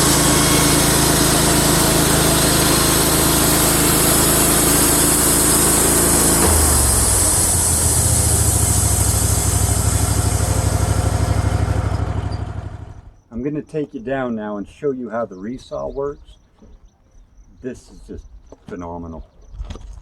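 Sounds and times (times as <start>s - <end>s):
sawmill engine running: 0.0s - 13.2s.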